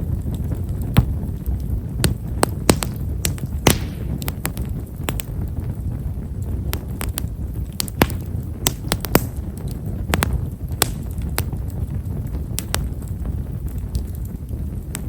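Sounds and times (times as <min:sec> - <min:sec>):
campfire wood crackling: 0:00.0 - 0:15.0
low rumble of fire: 0:00.0 - 0:15.0.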